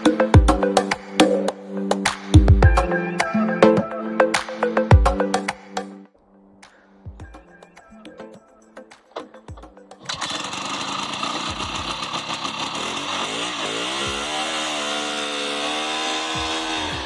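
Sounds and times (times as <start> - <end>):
snowmobile engine revving: 10.0 - 17.0.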